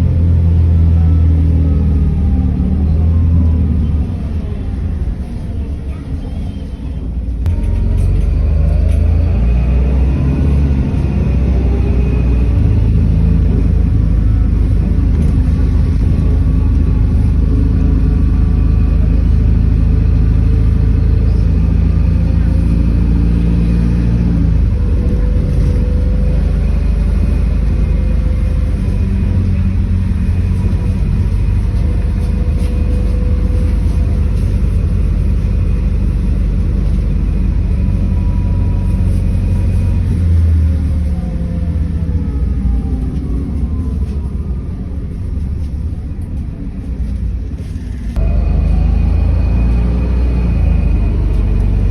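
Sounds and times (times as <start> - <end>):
bus engine droning: 0.0 - 51.9.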